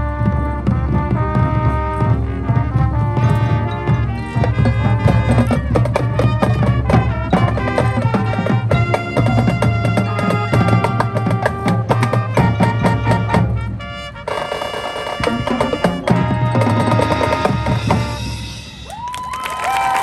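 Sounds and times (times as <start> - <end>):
drum roll: 0.0 - 20.0
marching band playing: 0.0 - 20.0
crowd cheering and applauding: 18.8 - 20.0.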